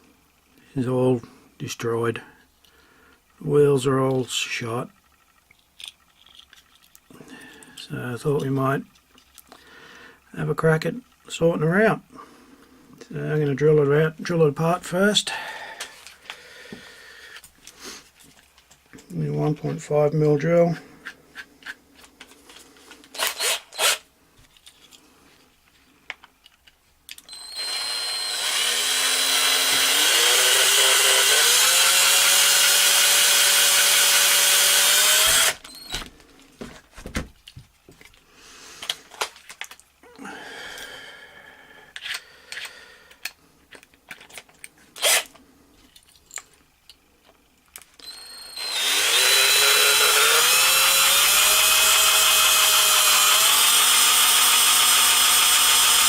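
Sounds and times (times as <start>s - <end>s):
small clicks and handling noises: 4.9s - 9.6s, 24.4s - 27.3s, 35.6s - 40.0s, 41.9s - 48.1s
electric drill whining: 23.2s - 24.0s, 27.2s - 36.1s, 45.0s - 45.3s, 48.0s - 56.0s.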